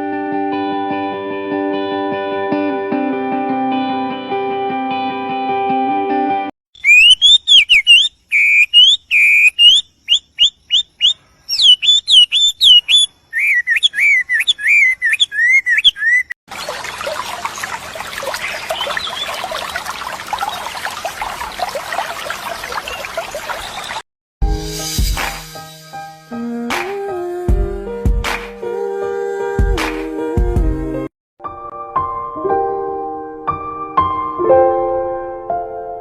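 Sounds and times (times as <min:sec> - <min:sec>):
songbird whistling: 0:06.8 - 0:16.3, 0:18.1 - 0:19.8
chatter of many birds: 0:17.1 - 0:19.8.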